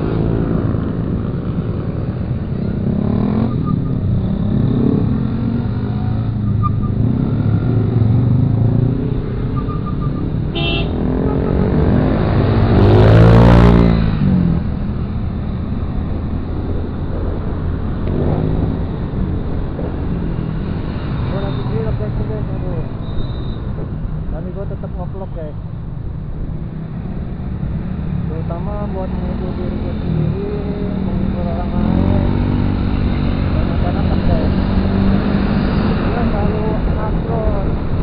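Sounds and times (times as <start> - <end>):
motorcycle engine and road noise: 0.0 - 38.0
short horn beep: 9.6 - 11.7.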